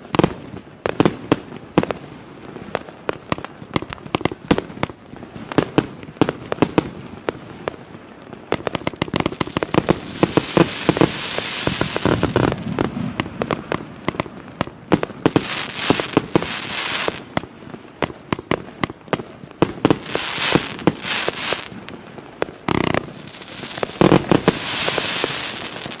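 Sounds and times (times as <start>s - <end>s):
firework crackling hiss: 0.0s - 26.0s
firework cake popping: 5.6s - 26.0s.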